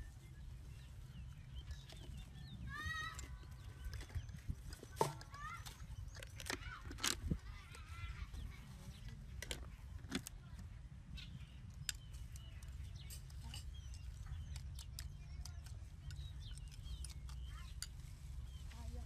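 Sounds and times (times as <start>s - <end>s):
bird calls chirping: 0.0s - 19.0s.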